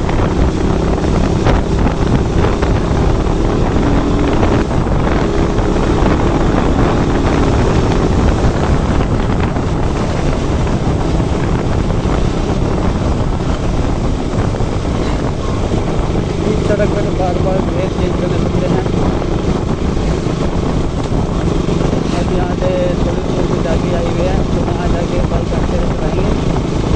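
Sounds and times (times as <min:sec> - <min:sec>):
motorcycle engine running: 0:00.0 - 0:26.9
wind buffeting microphone: 0:00.0 - 0:26.9.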